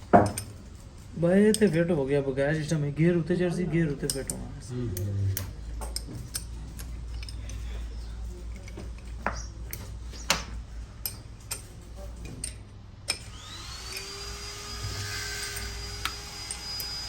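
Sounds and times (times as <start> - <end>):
metal parts clicking and knocking: 0.0 - 0.7, 1.5 - 1.9, 3.9 - 13.3, 15.3 - 17.0
electric motor whining: 13.2 - 17.0.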